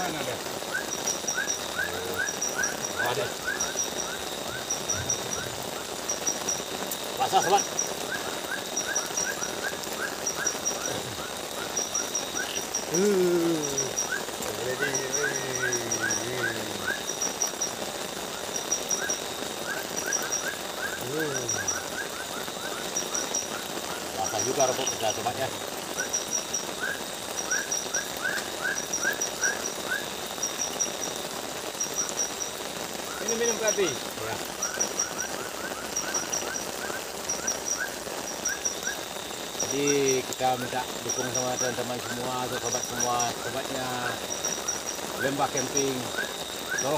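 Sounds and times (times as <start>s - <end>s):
pulsing insect trill: 0.0s - 46.9s
rain hissing: 0.0s - 46.9s
animal chirping: 0.6s - 17.7s.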